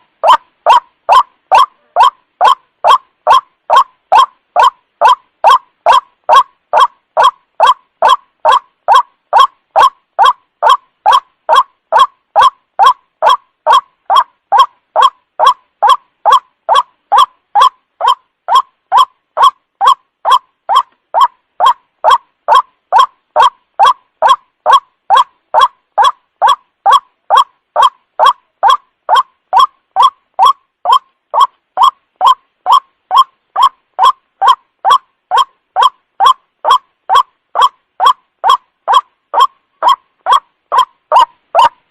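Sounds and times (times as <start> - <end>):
waterhen calling: 0.0 - 41.8.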